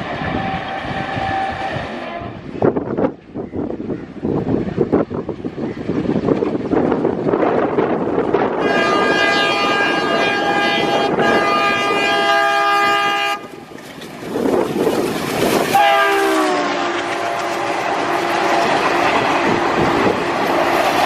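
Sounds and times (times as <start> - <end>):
locomotive horn: 0.0 - 2.6, 8.5 - 13.7, 15.7 - 20.8
passing train rumble and clatter: 0.0 - 21.0.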